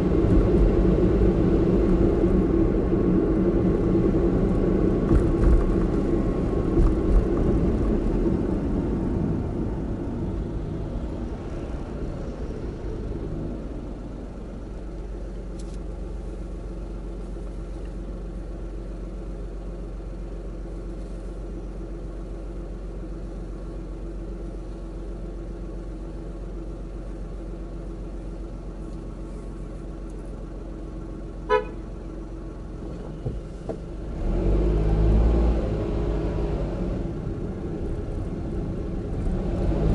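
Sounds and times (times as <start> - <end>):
car engine and road noise: 0.0 - 39.9
car horn toot: 31.5 - 31.9.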